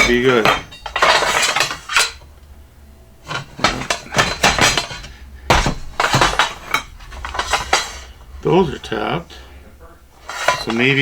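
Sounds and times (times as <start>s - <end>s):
metal parts clinking: 0.0s - 2.3s, 3.2s - 9.5s, 10.2s - 11.0s
sharp knocks: 3.2s - 8.4s.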